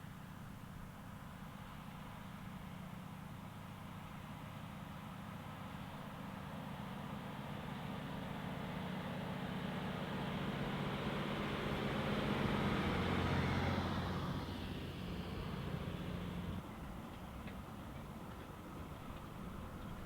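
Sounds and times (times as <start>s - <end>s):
diesel locomotive passing: 6.4s - 20.0s.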